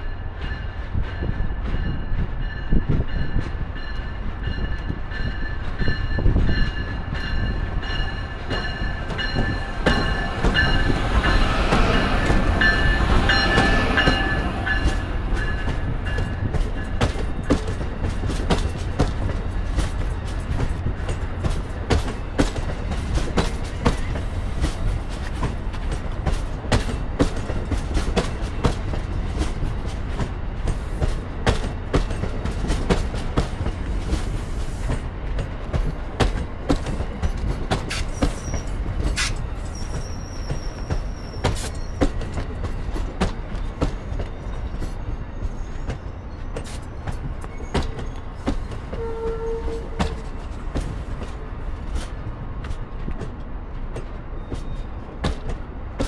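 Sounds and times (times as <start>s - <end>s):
train rumbling over rails: 0.0s - 56.0s.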